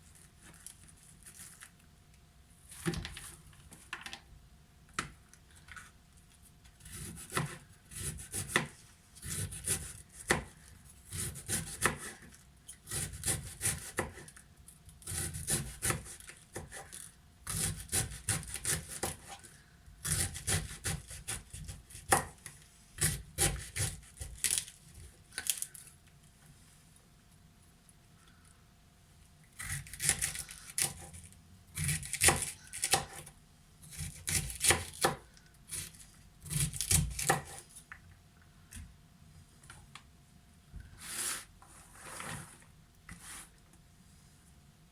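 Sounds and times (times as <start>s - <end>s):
knife chopping cabbage: 6.8s - 14.4s, 15.0s - 25.6s, 29.6s - 37.7s.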